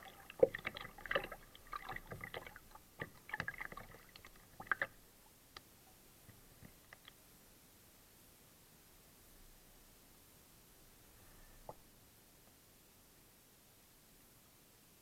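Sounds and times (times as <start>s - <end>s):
faint water drips: 0.0s - 7.2s.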